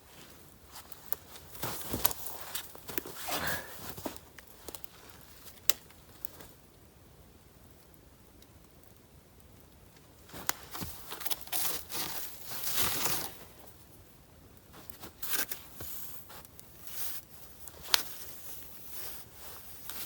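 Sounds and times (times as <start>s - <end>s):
material rustling and crinkling: 0.0s - 6.6s, 10.3s - 13.8s, 14.7s - 20.0s.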